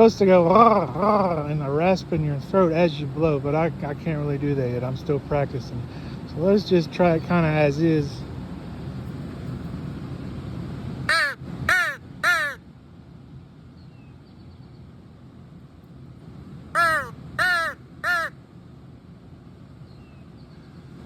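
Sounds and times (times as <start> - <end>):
crow call blown: 11.1 - 12.6, 16.8 - 18.4.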